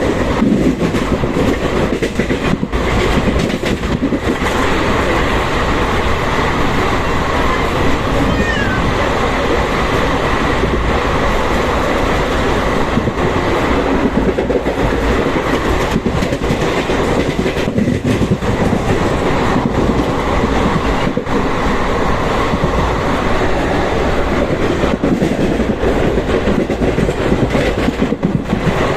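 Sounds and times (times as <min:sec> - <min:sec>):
train coaches rumbling and rattling: 0:00.0 - 0:28.9.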